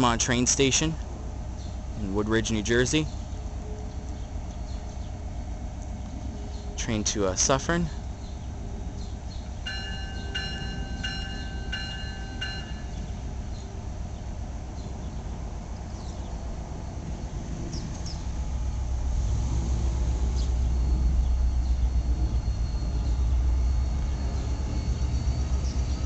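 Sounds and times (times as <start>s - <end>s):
diesel train rumble: 0.0s - 26.0s
steady background hum: 0.0s - 26.0s
bell ringing: 9.7s - 13.0s.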